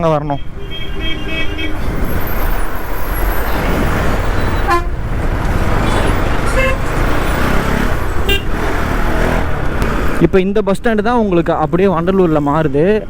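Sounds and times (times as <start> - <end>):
road and wind noise: 0.0 - 13.0
vehicle horn toots: 0.3 - 2.5, 3.2 - 5.2, 5.8 - 8.7.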